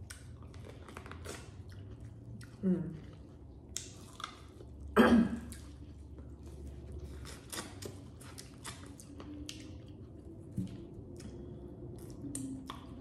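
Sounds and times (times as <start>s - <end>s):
biting and chewing corn: 0.0s - 2.6s, 5.5s - 13.0s.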